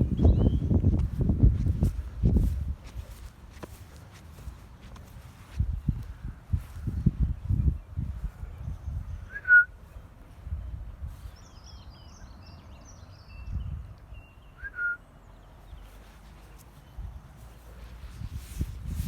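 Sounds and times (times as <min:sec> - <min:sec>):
faint high bird twittering: 0:00.0 - 0:00.8
loud whistled bird notes: 0:09.0 - 0:09.8, 0:13.2 - 0:15.0.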